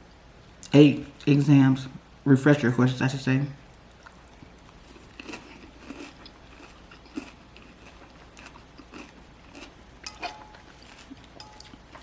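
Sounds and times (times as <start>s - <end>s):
person chewing food: 3.7s - 12.0s.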